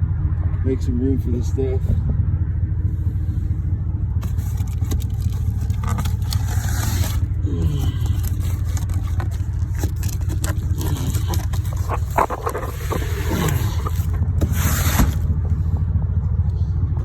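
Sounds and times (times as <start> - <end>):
engine idling: 0.0 - 17.0
cardboard cases scraping and knocking: 4.2 - 15.6.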